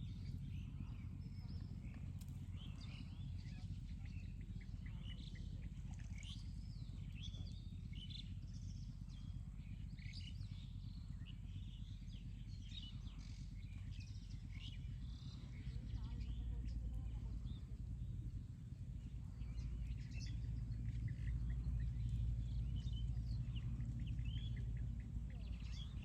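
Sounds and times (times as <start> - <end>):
small birds chirping: 0.0 - 26.0
steady low rumble: 0.0 - 26.0.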